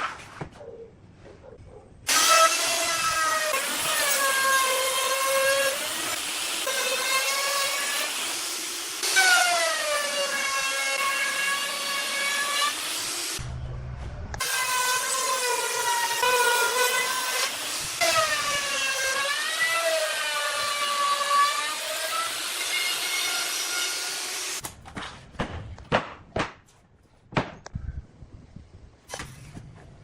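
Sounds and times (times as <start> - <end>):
power tool cutting wood: 2.1 - 13.4, 14.4 - 24.6.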